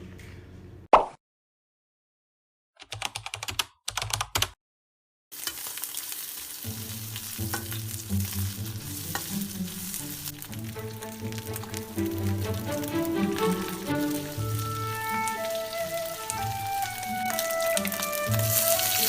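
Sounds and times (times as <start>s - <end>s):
food sizzling in a pan: 5.3s - 19.0s
background music: 6.7s - 19.0s.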